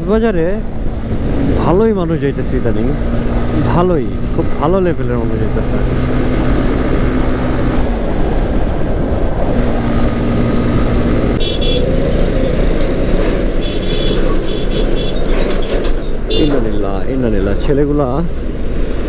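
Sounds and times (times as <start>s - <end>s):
wind and road noise: 0.0s - 19.0s
motorcycle engine: 9.7s - 16.4s
held steady horn tones: 11.4s - 12.6s, 13.6s - 15.3s.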